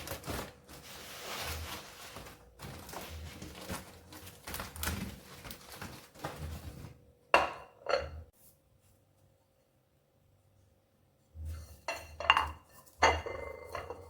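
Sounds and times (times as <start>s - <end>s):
dishes knocking and rattling: 7.3s - 8.3s, 11.8s - 14.0s.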